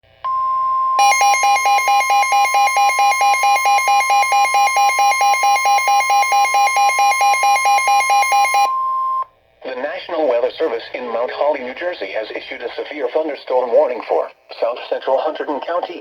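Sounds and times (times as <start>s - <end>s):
rapid alternating beeps: 1.0s - 9.2s
steady high alert tone: 1.0s - 9.2s.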